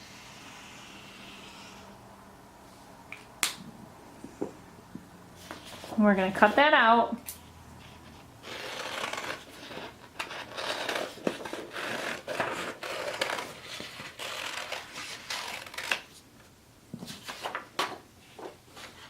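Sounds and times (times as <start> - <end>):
paper rustling: 17.0 - 19.0.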